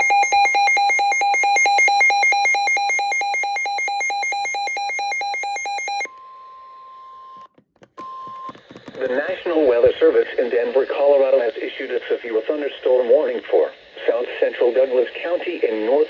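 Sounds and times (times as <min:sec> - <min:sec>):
alarm beeping rapidly: 0:00.0 - 0:06.1.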